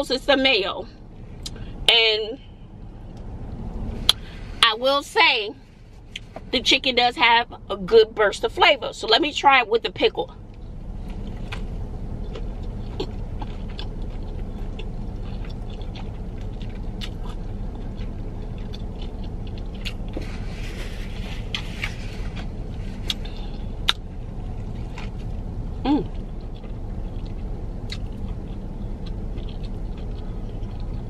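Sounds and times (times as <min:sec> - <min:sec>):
steady low rumble: 0:00.0 - 0:31.0
moist chewing with crunches: 0:10.6 - 0:31.0.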